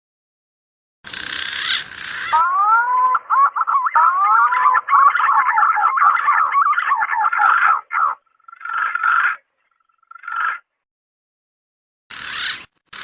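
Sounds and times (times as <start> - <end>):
pigeon whistling call: 1.5 - 8.2.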